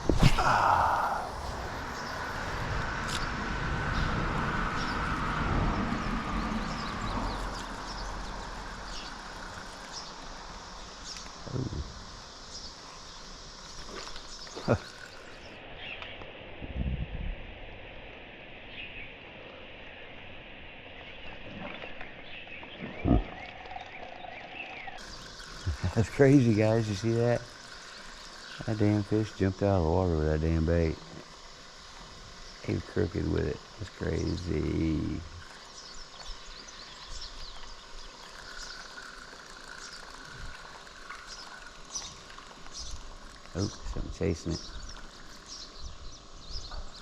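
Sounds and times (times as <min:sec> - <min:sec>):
low thump: 0:00.0 - 0:01.1
frogs calling: 0:00.0 - 0:16.4, 0:18.6 - 0:47.0
steady background hiss: 0:00.0 - 0:16.6, 0:24.8 - 0:47.0
insects calling: 0:00.0 - 0:16.8, 0:17.4 - 0:47.0.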